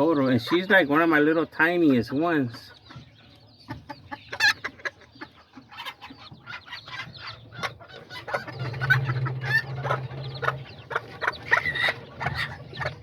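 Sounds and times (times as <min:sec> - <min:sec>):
chickens clucking: 0:00.0 - 0:13.0
chicks peeping: 0:00.0 - 0:13.0.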